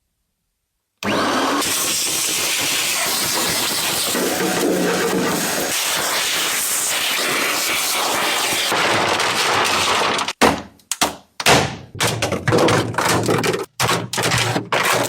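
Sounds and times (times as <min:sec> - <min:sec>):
hiss of tool work: 0:01.0 - 0:09.0.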